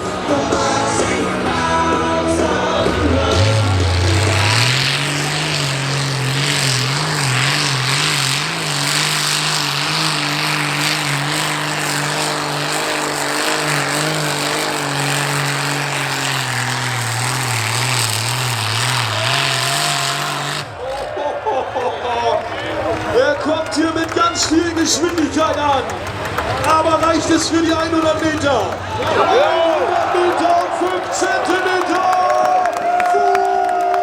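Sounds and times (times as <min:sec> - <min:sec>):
engine running hard under load: 0:00.0 - 0:34.0.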